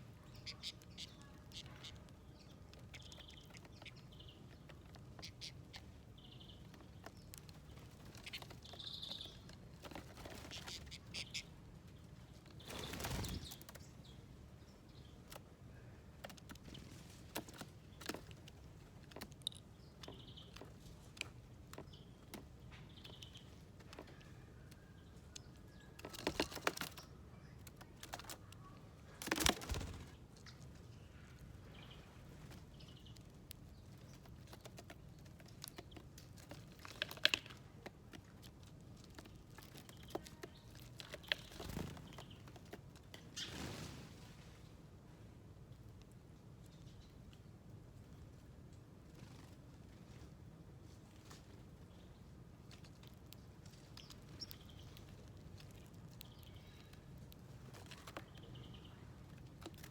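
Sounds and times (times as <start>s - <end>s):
birds pecking on feeder: 0.2s - 14.3s, 15.0s - 43.5s, 49.6s - 59.9s
wing flutters: 12.6s - 13.8s, 29.2s - 30.3s.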